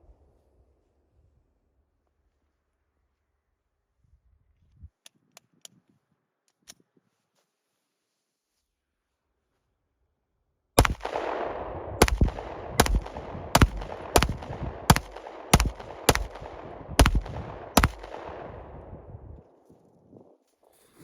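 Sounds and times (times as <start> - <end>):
pistol shots with echo: 10.8 - 19.1.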